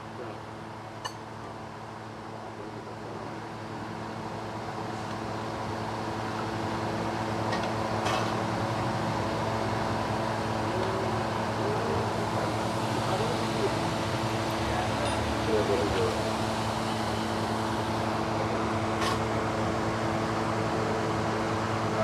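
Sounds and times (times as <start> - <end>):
car engine running: 8.7 - 20.1.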